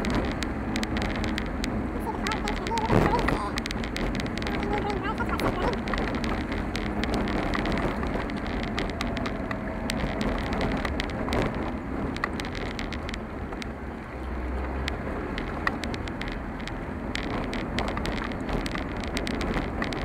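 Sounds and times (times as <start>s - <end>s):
road and tyre rumble: 0.0s - 20.0s
ticks and rattles: 0.0s - 20.0s.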